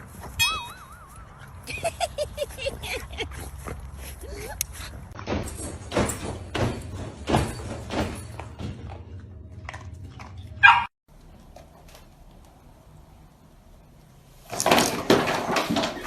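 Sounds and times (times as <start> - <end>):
dog barking: 10.6 - 10.9.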